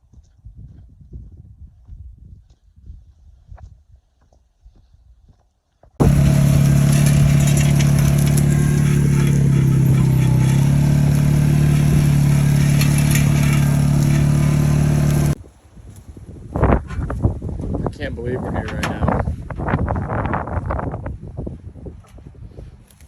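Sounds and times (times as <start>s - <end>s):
vehicle engine running at high revs: 6.0s - 15.4s.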